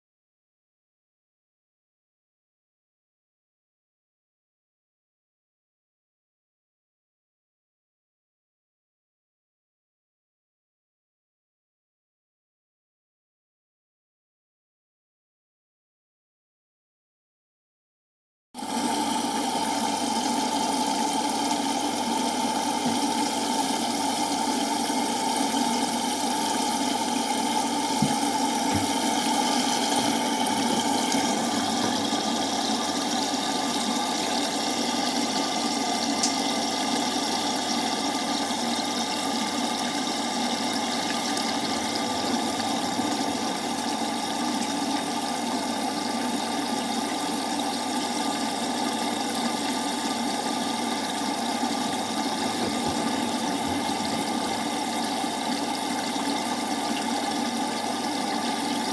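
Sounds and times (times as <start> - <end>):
washing machine running: 18.6 - 58.9.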